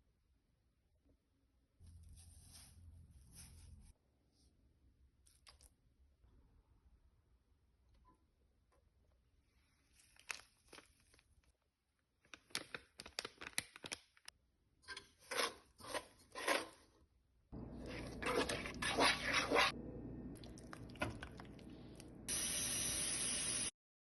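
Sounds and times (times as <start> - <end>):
crackling and crunching handling: 9.8 - 14.3.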